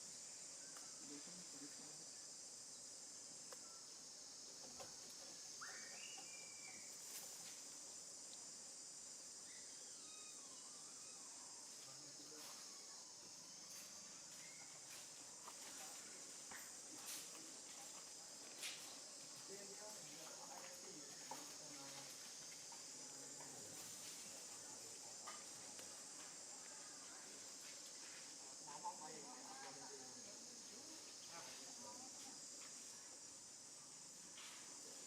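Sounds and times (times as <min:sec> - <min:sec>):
insects chirping: 0:00.0 - 0:35.0.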